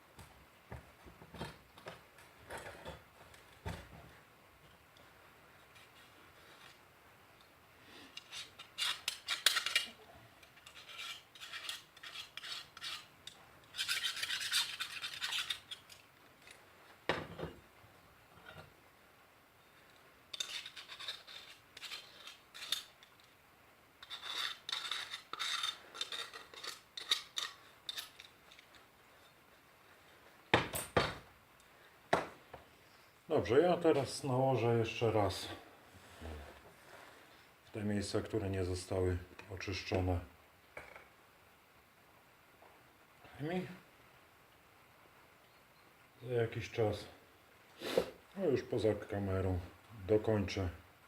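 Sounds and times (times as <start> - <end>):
scraping paint off metal: 10.6 - 16.0.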